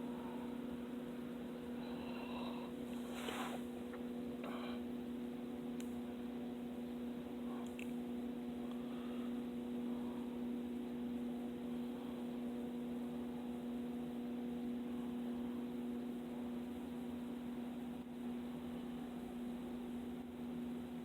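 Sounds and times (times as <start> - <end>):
electrical hum: 0.0 - 21.0
faint handling sounds: 2.8 - 4.6.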